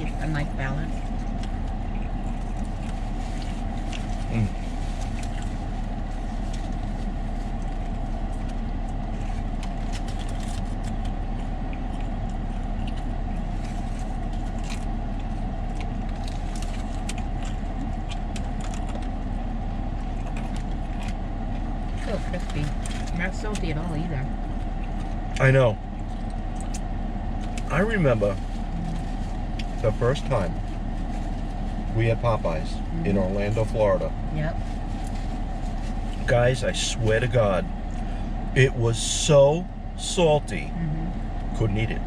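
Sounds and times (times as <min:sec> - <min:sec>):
car engine idling: 0:00.0 - 0:42.0
small clicks and crackles: 0:06.4 - 0:19.1.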